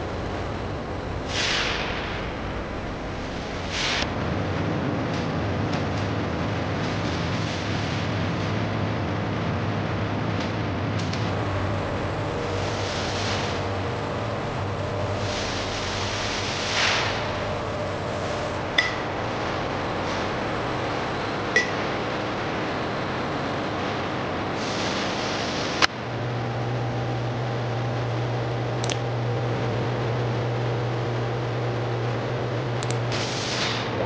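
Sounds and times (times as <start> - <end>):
low steady hum: 0.0 - 34.0
machinery noise: 0.0 - 34.0
sharp click: 28.8 - 29.0, 32.8 - 33.0.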